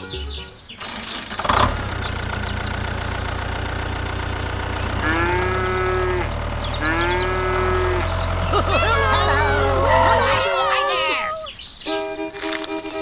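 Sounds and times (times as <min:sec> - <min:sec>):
tractor engine idling: 0:00.8 - 0:11.2
cow mooing: 0:05.0 - 0:11.2.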